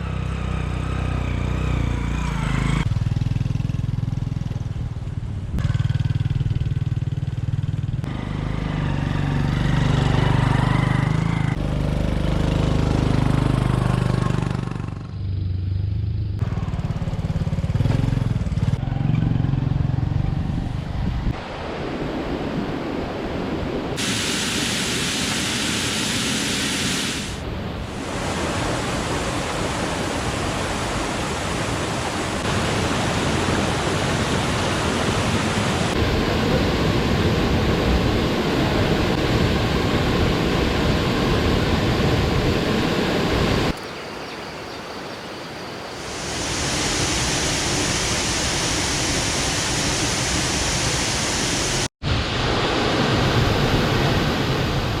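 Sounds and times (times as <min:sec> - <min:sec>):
waterfall rushing water: 0:23.3 - 0:55.0.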